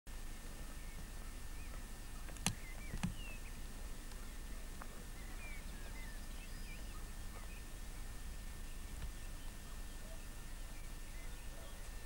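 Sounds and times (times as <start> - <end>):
steady hiss: 0.1 - 12.0
small birds chirping: 0.3 - 12.0
sharp clicks: 2.2 - 3.3.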